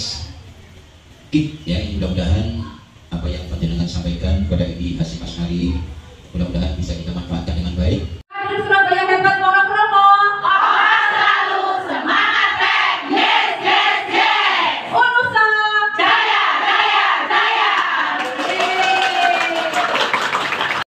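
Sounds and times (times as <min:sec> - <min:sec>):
women chanting a cheer: 0:10.4 - 0:19.6.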